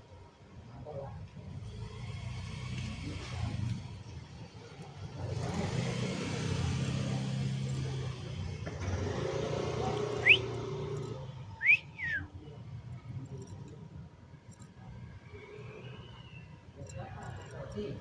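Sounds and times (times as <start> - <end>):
vehicle passing with low rumble: 1.6 - 11.8
sharp rising whistled note: 10.2 - 10.5.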